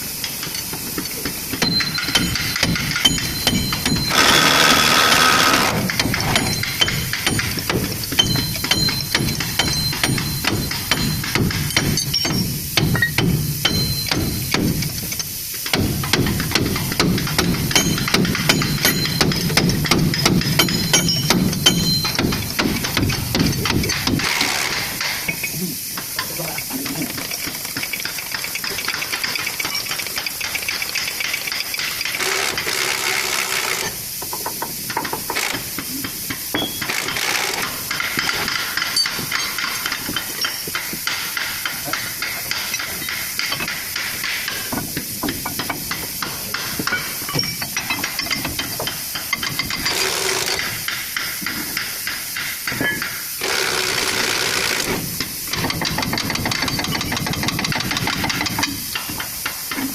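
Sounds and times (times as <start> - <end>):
air hissing: 0.0 - 59.9
rattling air tool hammering: 0.0 - 59.9.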